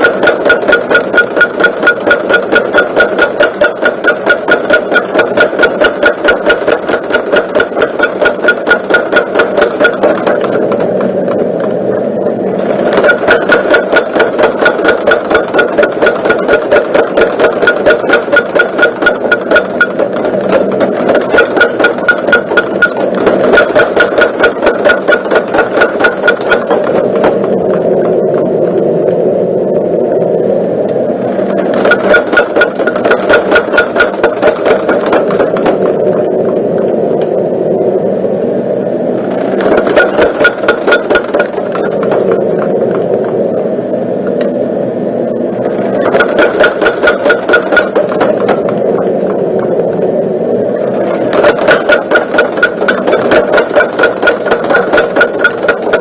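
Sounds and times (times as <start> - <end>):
power hammer ram striking rapidly: 0.0 - 11.1, 12.6 - 27.9, 31.5 - 36.1, 39.4 - 42.7, 45.9 - 48.8, 51.2 - 56.0
drive motor running: 0.0 - 56.0.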